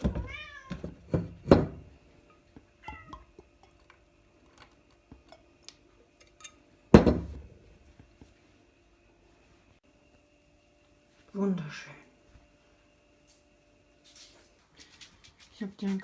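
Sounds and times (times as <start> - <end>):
cat meowing: 0.1 - 0.8
faint steady hum: 0.1 - 15.5.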